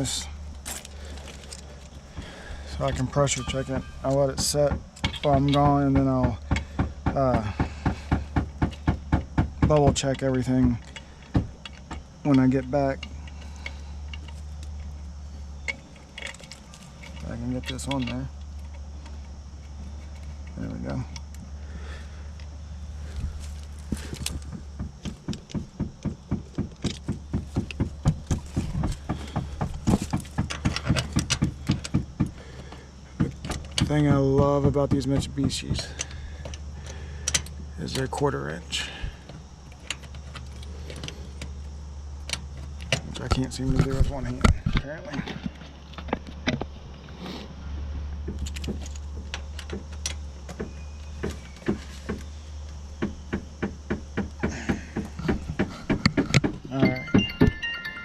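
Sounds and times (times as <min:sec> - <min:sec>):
steady low hum: 0:00.0 - 0:58.0
metal tools clicking and knocking: 0:02.8 - 0:07.4, 0:15.6 - 0:18.8, 0:26.8 - 0:38.2.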